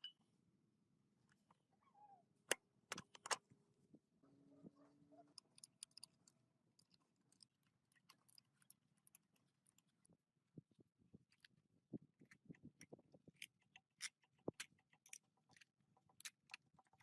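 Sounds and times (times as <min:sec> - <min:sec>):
small clicks: 0:05.4 - 0:10.0.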